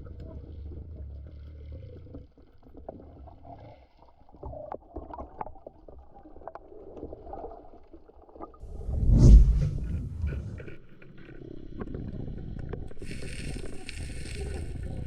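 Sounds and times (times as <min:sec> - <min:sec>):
muffled underwater rumble: 0:08.6 - 0:10.9, 0:11.5 - 0:15.0.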